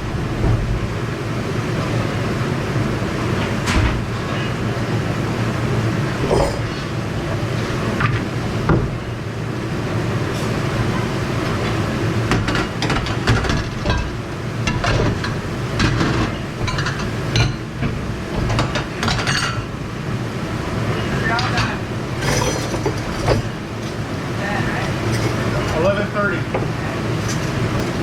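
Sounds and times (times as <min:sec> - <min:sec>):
kitchen machinery rumble: 0:00.0 - 0:28.0
dishes and cutlery clinking: 0:14.7 - 0:17.7, 0:18.4 - 0:19.7, 0:21.4 - 0:23.5, 0:25.0 - 0:25.8.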